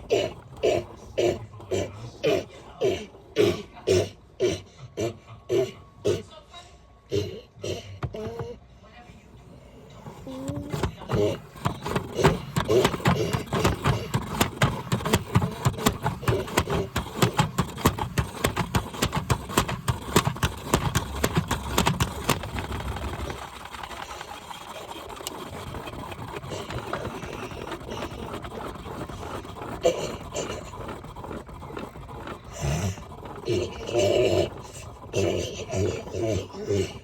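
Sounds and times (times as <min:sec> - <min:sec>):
washing machine running: 0:00.0 - 0:06.4, 0:07.6 - 0:37.0
washing machine knocking and clattering: 0:10.3 - 0:24.0.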